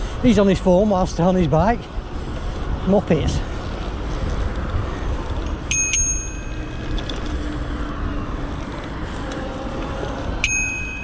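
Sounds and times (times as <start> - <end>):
low rumble from riding: 0.0 - 11.0
bicycle bell ringing: 5.5 - 7.1, 10.4 - 11.0.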